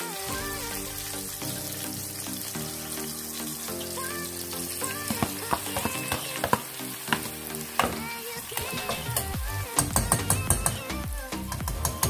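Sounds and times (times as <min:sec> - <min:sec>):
vegetables sizzling in a pan: 0:00.0 - 0:09.9
meat clattering and spitting in pan: 0:05.1 - 0:09.4.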